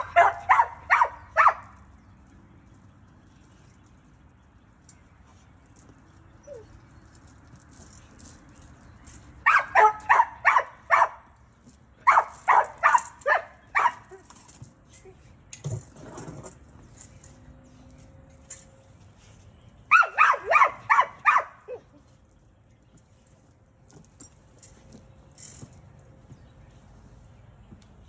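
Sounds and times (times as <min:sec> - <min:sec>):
dog barking: 0:00.0 - 0:01.7, 0:09.5 - 0:11.2, 0:12.1 - 0:14.1, 0:19.9 - 0:21.8.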